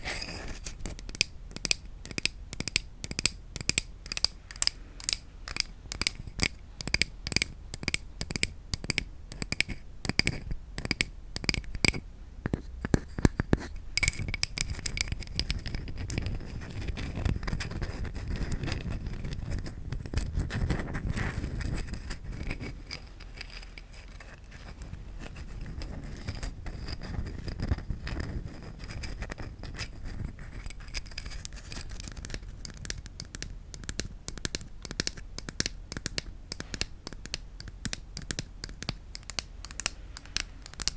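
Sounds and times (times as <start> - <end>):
scratching and scraping on wood: 0.0 - 1.2, 12.5 - 33.0.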